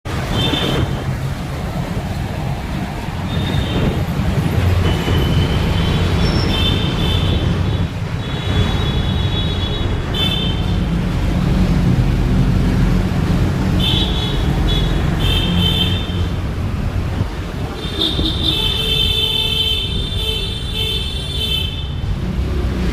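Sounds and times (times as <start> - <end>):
road traffic rumble: 0.0 - 22.9.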